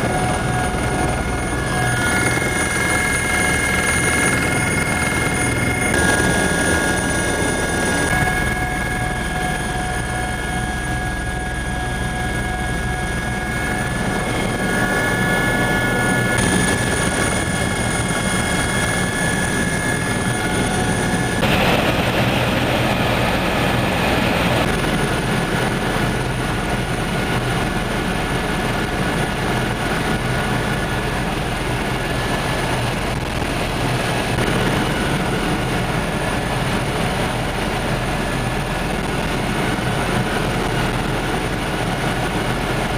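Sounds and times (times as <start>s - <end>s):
helicopter engine and rotor: 0.0s - 42.9s
loud rush of noise: 13.7s - 25.5s.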